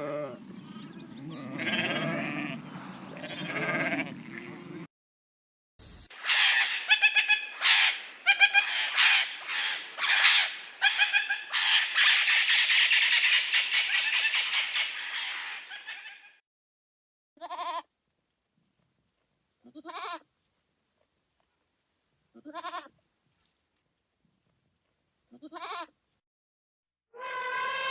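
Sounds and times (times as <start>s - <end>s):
animal bleating: 0.0s - 4.9s, 8.3s - 8.7s, 10.8s - 11.5s, 17.4s - 17.9s, 19.6s - 20.3s, 22.3s - 23.0s, 25.3s - 25.9s, 27.2s - 27.9s.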